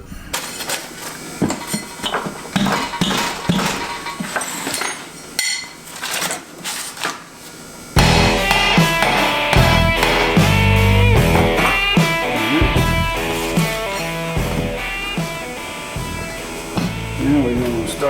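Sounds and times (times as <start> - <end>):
hand tools knocking and clattering: 0.4 - 7.4, 8.0 - 15.1
background music with guitar: 8.0 - 18.0.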